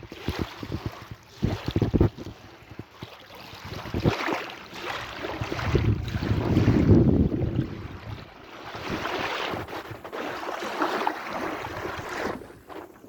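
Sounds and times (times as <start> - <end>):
wind buffeting microphone: 0.0 - 10.2
sea waves washing: 3.6 - 13.0.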